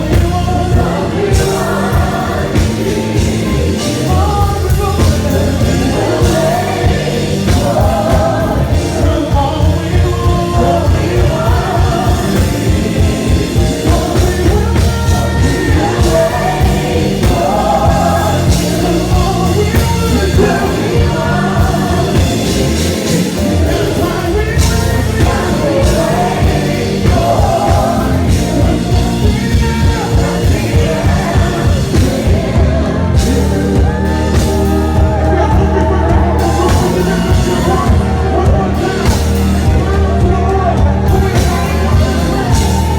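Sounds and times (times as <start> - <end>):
band playing a slow beat: 0.0 - 42.9
voices singing a melody: 0.0 - 42.9.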